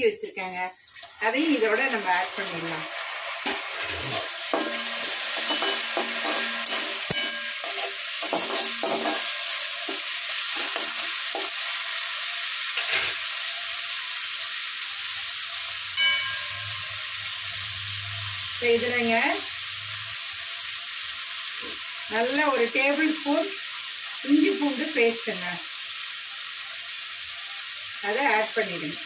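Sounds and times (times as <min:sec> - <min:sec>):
vegetables sizzling in oil: 0:00.0 - 0:29.0
metal spatula scraping pan: 0:03.4 - 0:11.6.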